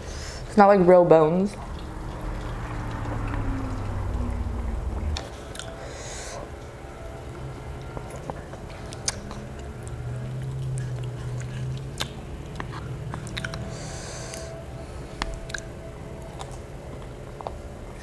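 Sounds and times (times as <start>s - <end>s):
chewing and biting food: 7.9s - 14.5s, 15.1s - 18.0s.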